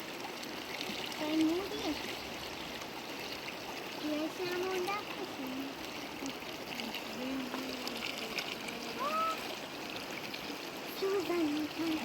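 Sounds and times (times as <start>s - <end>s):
river water flowing: 0.0s - 12.0s
faint voice sounds: 6.8s - 9.5s.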